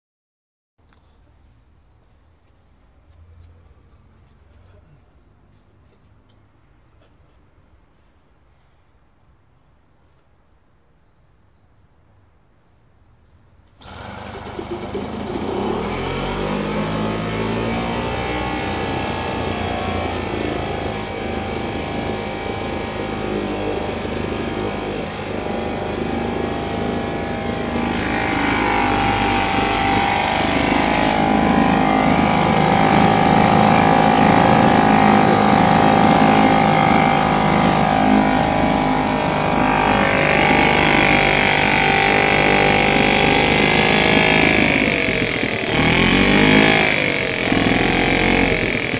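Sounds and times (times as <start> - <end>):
outboard motor running: 13.8 - 48.9.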